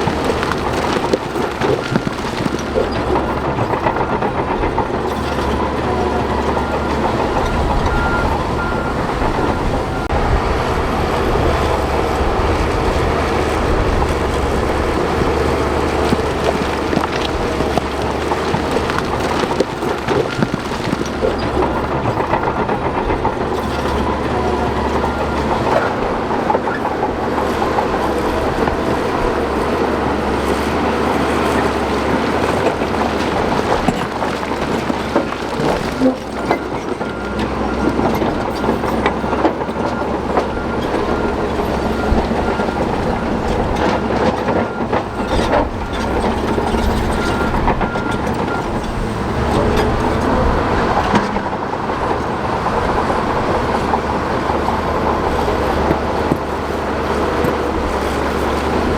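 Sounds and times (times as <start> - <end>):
bulldozer diesel engine: 0.0 - 58.9
clatter of steel tracks and rock: 0.0 - 58.9.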